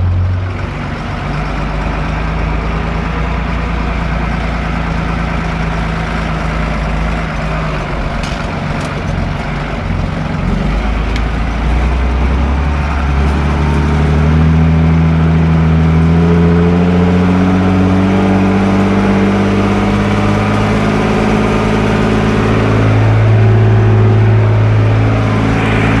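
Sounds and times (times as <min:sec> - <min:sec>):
tractor diesel engine revving: 0:00.0 - 0:26.0.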